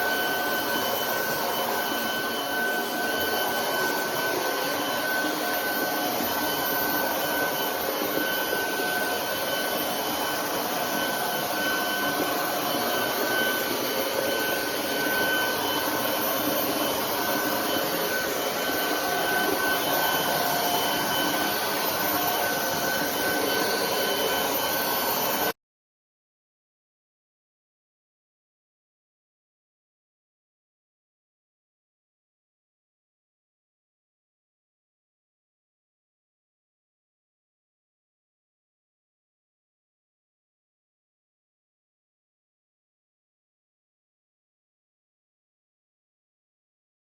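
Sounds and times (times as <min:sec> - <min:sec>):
cordless vacuum running: 0:00.0 - 0:25.5.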